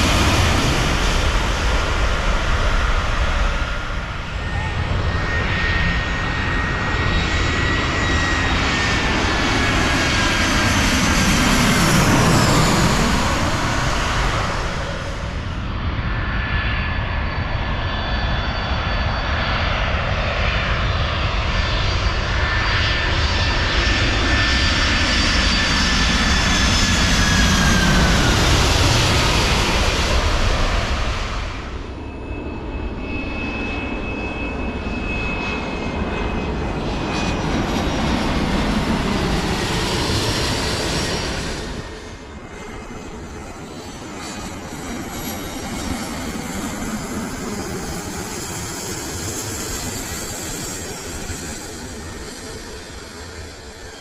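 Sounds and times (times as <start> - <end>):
jet engines roaring overhead: 0.0 - 54.0.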